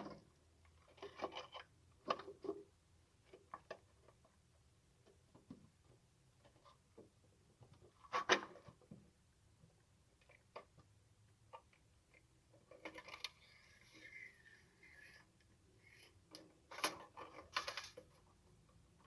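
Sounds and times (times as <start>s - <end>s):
rubbing and scraping by hand: 13.3s - 16.3s.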